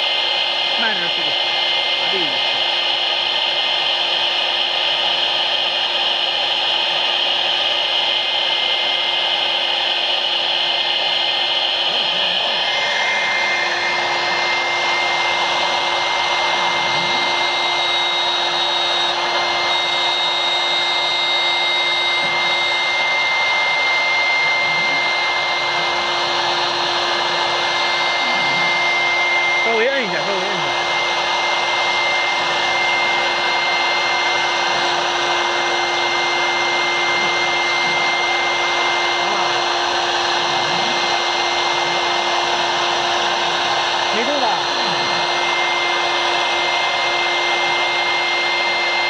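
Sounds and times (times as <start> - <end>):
router spindle whine: 0.0 - 49.0
hiss of cutting: 11.8 - 14.4.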